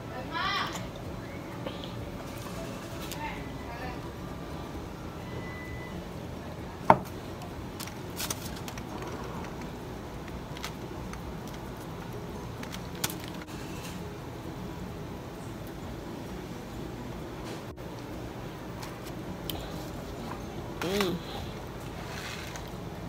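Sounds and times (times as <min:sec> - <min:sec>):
mouth and handling sounds eating: 0:07.1 - 0:13.5, 0:17.9 - 0:23.0.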